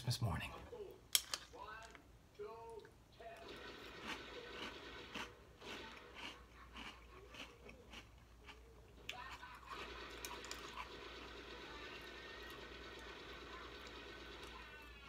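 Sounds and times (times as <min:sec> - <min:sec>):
person chewing crunchy cereal: 0:03.5 - 0:15.0.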